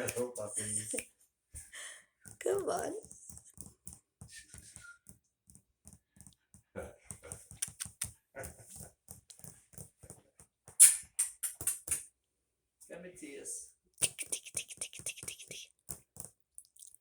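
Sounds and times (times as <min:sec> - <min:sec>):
puppies' paws clicking and tapping: 0:01.6 - 0:12.1, 0:14.0 - 0:16.4.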